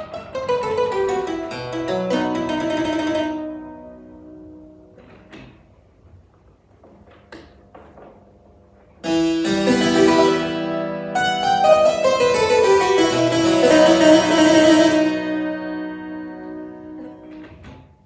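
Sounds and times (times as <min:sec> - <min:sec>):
harpsichord playing: 0:00.0 - 0:05.0, 0:09.0 - 0:17.6.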